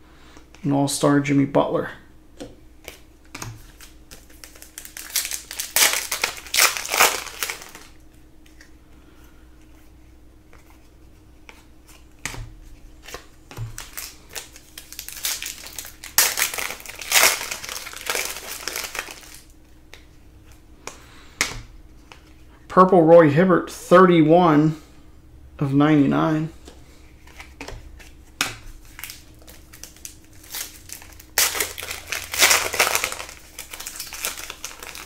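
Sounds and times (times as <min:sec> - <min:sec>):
foil wrapper crinkling: 0:03.6 - 0:08.0, 0:13.0 - 0:19.5, 0:27.3 - 0:35.0.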